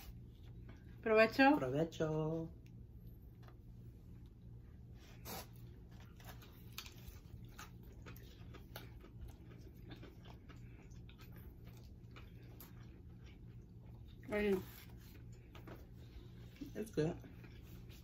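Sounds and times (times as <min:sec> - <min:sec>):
low steady hum: 0:00.0 - 0:18.0
chewing crunches: 0:05.2 - 0:18.0.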